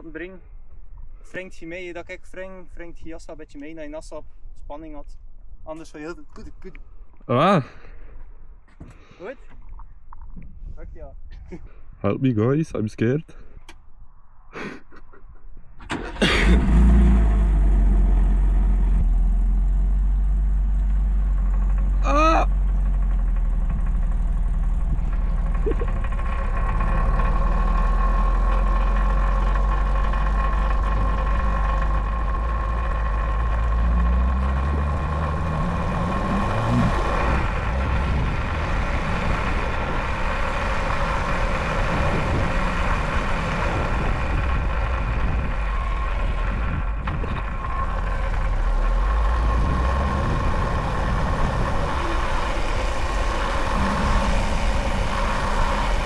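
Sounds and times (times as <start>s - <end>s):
go-kart engine running rough: 15.8s - 56.0s.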